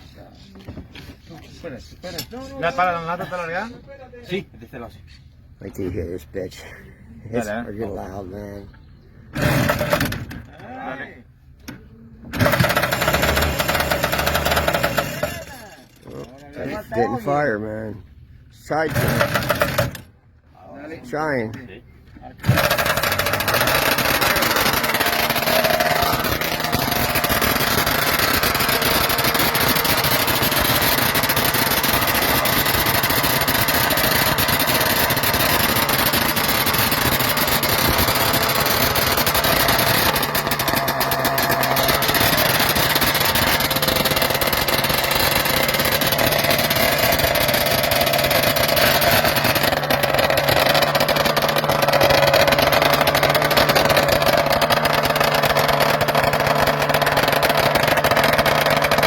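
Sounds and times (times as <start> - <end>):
motorcycle two-stroke engine revving: 12.3 - 16.4, 18.8 - 20.1, 22.4 - 59.0.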